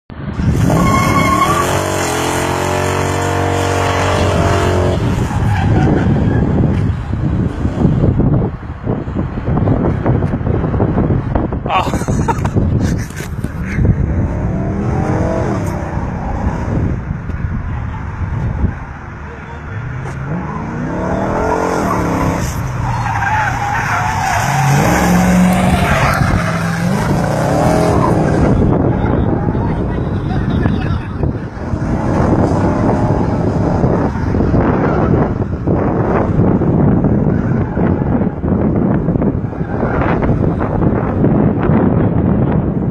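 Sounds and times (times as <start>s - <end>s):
car engine revving high: 0.4s - 5.4s, 14.0s - 17.0s, 20.0s - 29.8s
tyres squealing and skidding: 0.4s - 7.0s, 19.3s - 35.5s, 37.0s - 40.5s.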